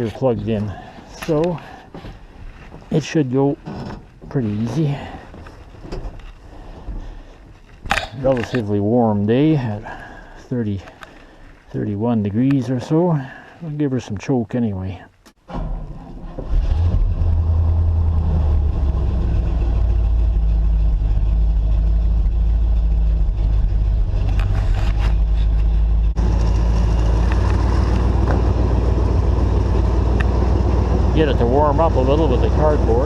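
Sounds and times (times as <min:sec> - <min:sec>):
car engine running: 0:17.1 - 0:33.0.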